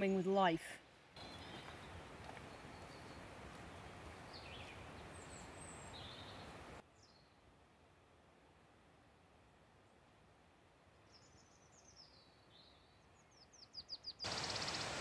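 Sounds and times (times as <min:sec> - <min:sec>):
background hiss: 0:00.0 - 0:15.0
small birds chirping: 0:01.2 - 0:07.4, 0:11.1 - 0:15.0.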